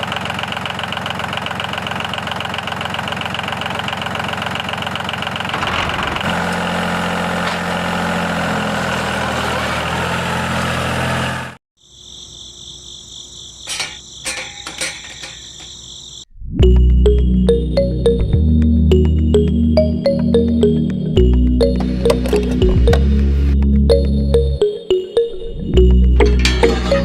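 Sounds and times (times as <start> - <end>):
small tractor engine rattling: 0.0 - 11.6, 21.6 - 23.4, 26.1 - 27.0.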